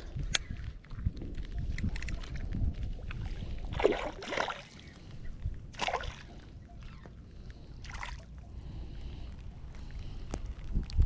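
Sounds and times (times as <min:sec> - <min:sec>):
wind rumble on microphone: 0:00.0 - 0:05.8, 0:08.9 - 0:11.0.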